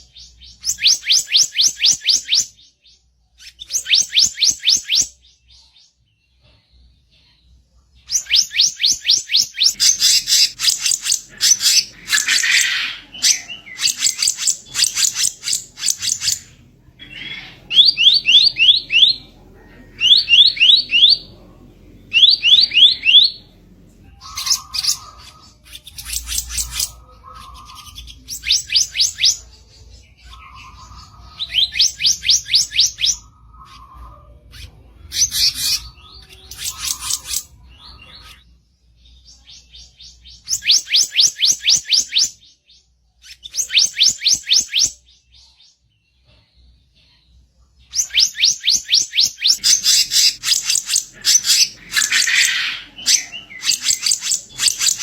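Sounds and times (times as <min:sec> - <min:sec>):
bird chattering trills: 0:08.1 - 0:19.3, 0:24.1 - 0:29.5, 0:30.2 - 0:37.6, 0:48.0 - 0:55.0.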